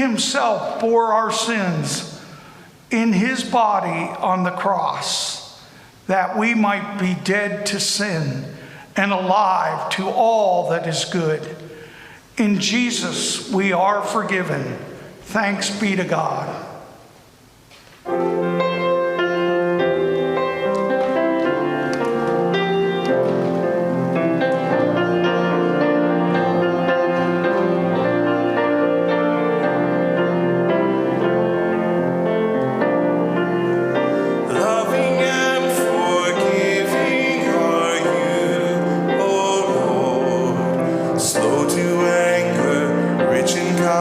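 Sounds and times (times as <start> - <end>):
church music on keyboard: 0.0 - 44.0
voices singing: 34.5 - 44.0.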